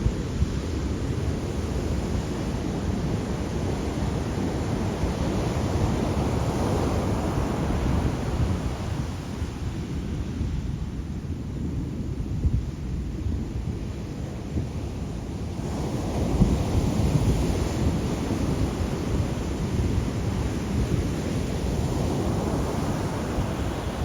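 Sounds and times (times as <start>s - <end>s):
ocean waves breaking: 20.6s - 24.0s.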